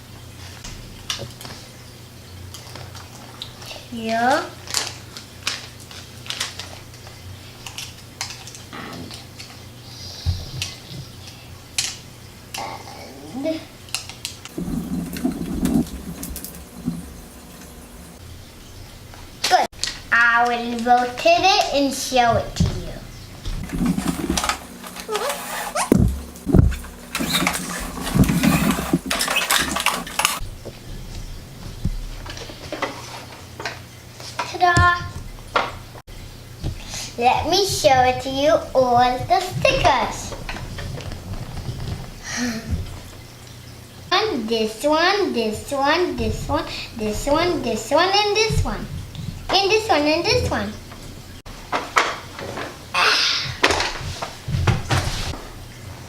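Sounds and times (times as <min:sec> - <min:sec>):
soft thump: 0:25.9 - 0:27.0.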